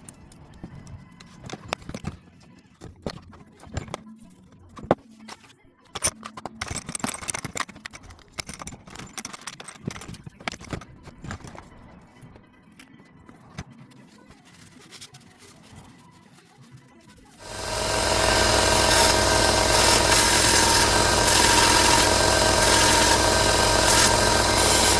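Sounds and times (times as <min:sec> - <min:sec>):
metal parts clinking: 0:06.0 - 0:10.8
scratchy rustling: 0:14.0 - 0:24.9.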